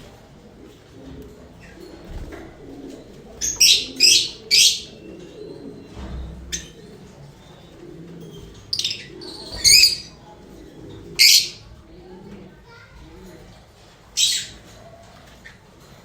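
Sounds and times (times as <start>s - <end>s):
lovebirds chirping: 2.8s - 10.2s, 11.1s - 11.7s.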